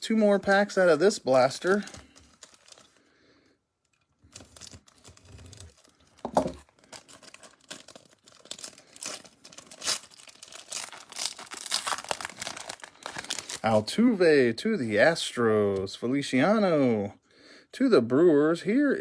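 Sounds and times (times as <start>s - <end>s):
wrapper tearing and crinkling: 0.8s - 3.0s, 3.9s - 13.9s.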